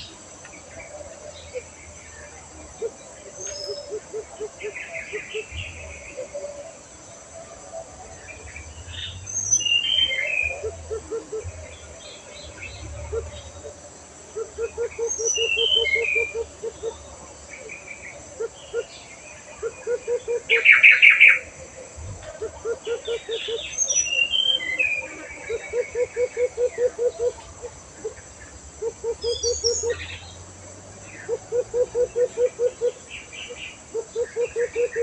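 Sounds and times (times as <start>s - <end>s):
bird low pulsed notes: 7.8s - 17.8s
birds chirping and whistling: 8.2s - 13.7s, 14.6s - 17.0s, 22.0s - 27.4s.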